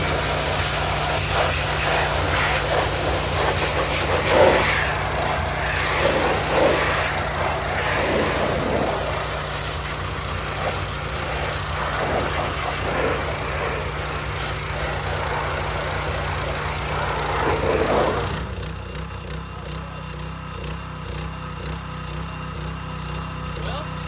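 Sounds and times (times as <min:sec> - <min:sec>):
high-pressure water spraying: 0:00.0 - 0:18.7
pressure washer engine running: 0:00.0 - 0:24.0.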